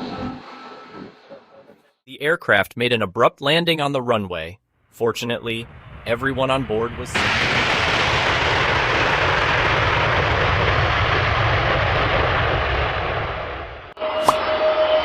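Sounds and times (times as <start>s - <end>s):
aircraft engines roaring: 5.5s - 15.0s.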